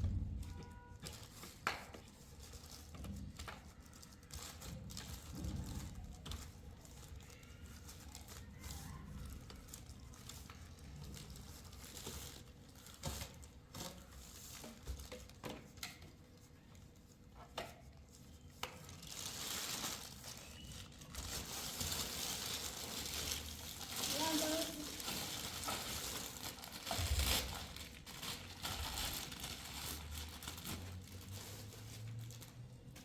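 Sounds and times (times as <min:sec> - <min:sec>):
handling knocks and rustling: 0:09.0 - 0:33.0.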